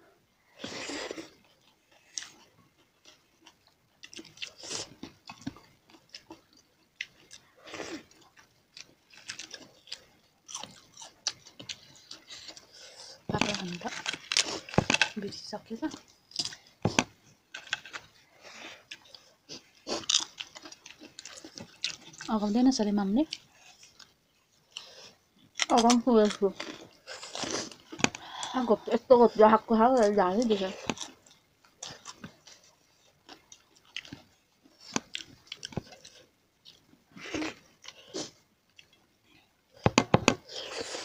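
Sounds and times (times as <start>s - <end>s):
wet chewing and mouth smacks: 1.3s - 15.2s, 18.8s - 22.4s, 30.7s - 39.4s.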